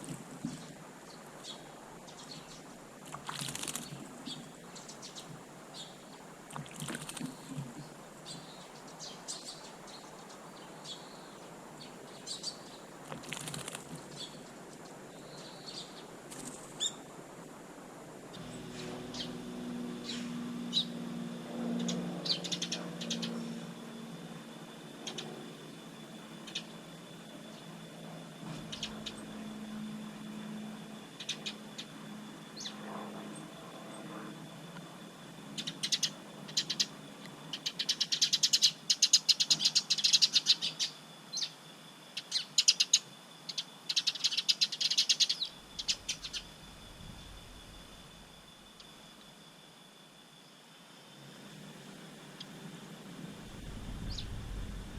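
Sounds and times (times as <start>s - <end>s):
small birds chirping: 0.0s - 17.0s, 18.3s - 21.0s, 21.7s - 24.0s, 24.9s - 27.8s, 28.5s - 34.0s, 35.5s - 47.4s, 53.5s - 54.9s
low steady hum: 0.0s - 54.9s.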